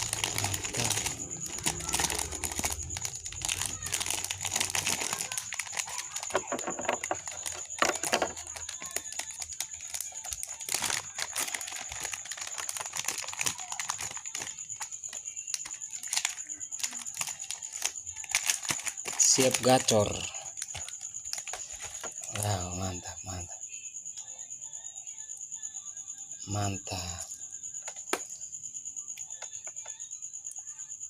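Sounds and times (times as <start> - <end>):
plastic packaging crinkling: 0.0 - 22.5.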